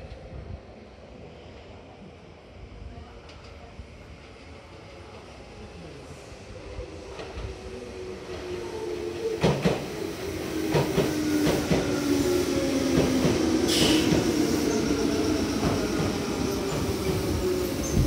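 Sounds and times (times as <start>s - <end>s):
train wheels clacking: 9.4s - 9.9s, 12.8s - 14.9s.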